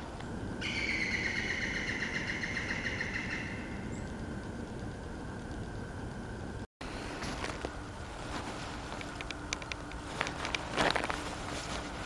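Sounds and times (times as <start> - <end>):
low steady background noise: 0.0 - 12.0
bird calling: 0.6 - 4.1.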